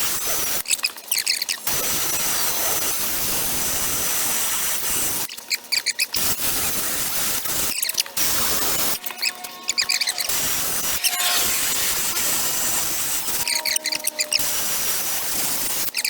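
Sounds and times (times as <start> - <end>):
squeaky chirps: 0.6 - 1.7, 5.4 - 6.2, 7.6 - 16.0
rotary grinder whining: 7.7 - 16.0.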